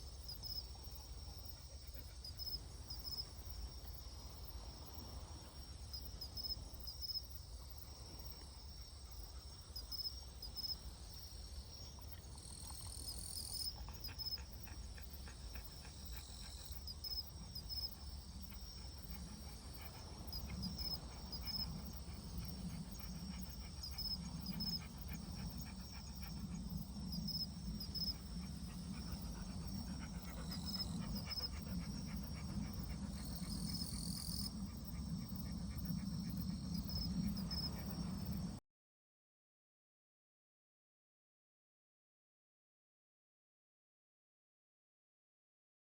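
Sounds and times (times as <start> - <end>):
night insects chirping: 0.0 - 38.6
dog panting: 12.0 - 38.6.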